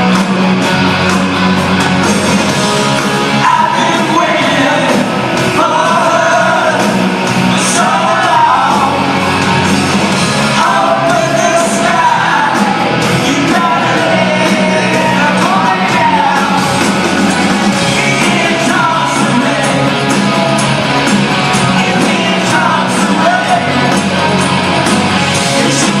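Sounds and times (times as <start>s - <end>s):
drum beat: 0.0s - 26.0s
loud rock music: 0.0s - 26.0s
person singing and shouting: 3.4s - 9.2s, 10.5s - 17.0s, 17.8s - 20.0s.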